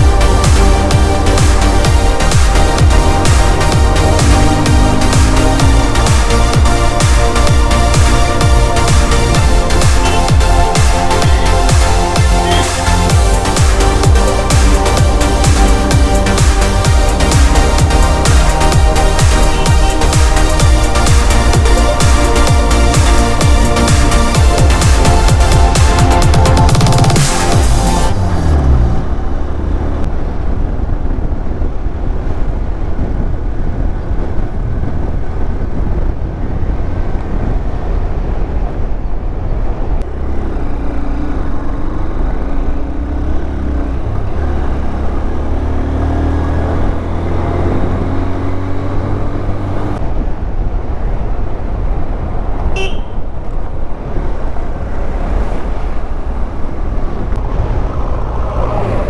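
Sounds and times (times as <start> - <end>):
motorcycle engine running: 0.0 - 31.2, 40.1 - 50.0
wind rumble on microphone: 0.0 - 59.0
short horn beep: 52.8 - 53.2.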